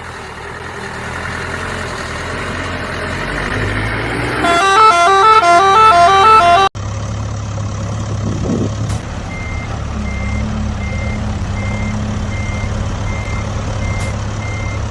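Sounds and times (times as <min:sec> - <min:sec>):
vehicle engine humming: 0:00.0 - 0:14.9
reversing alarm beeping: 0:04.4 - 0:06.7, 0:09.3 - 0:14.9
musical vehicle horn tune: 0:04.4 - 0:06.8.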